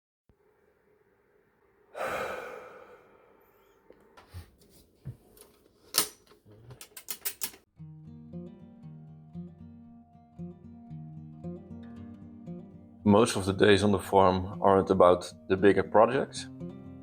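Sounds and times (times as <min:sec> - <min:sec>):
sharp clicks and knocks: 0:05.1 - 0:07.7
acoustic guitar music: 0:07.7 - 0:17.0.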